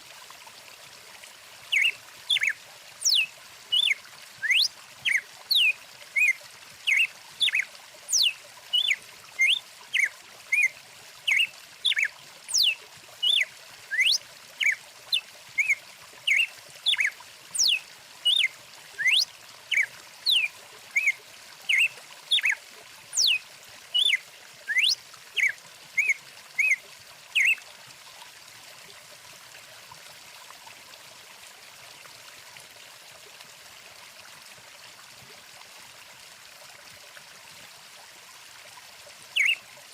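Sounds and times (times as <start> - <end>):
songbird whistling: 1.7 - 10.7, 11.3 - 14.8, 15.6 - 22.6, 23.2 - 23.4, 24.0 - 26.8, 27.4 - 27.6, 39.4 - 39.6.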